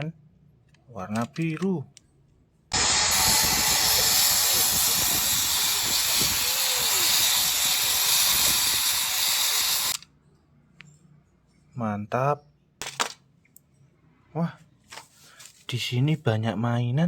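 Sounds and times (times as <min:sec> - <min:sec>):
loud steam hissing: 0:02.7 - 0:10.0.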